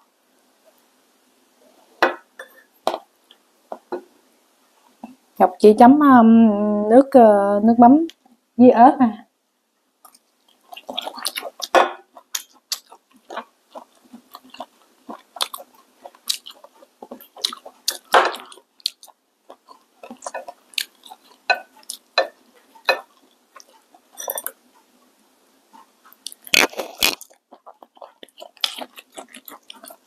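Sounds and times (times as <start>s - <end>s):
chewing and biting: 10.1s - 24.0s, 25.8s - 30.0s.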